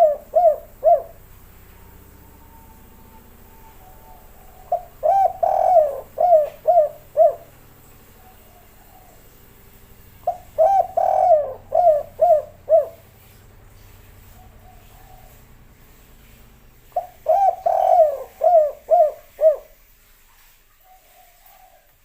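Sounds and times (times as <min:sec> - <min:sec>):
dove cooing: 0:00.0 - 0:09.5, 0:10.2 - 0:13.1, 0:14.4 - 0:15.6, 0:16.9 - 0:19.8, 0:20.9 - 0:22.0.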